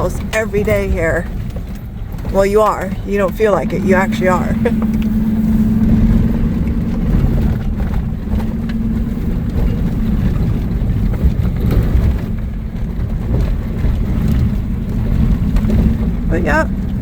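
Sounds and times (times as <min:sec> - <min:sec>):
vehicle engine and road rumble: 0:00.0 - 0:17.0
steady hum: 0:02.3 - 0:11.3.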